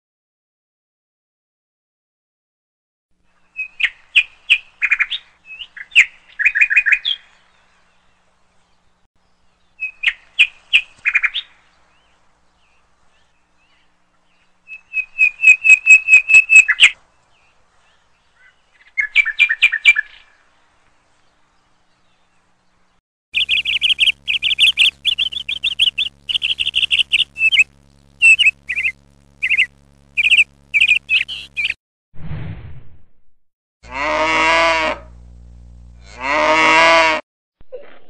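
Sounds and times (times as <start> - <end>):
songbird chirps and trills: 3.3 - 31.8.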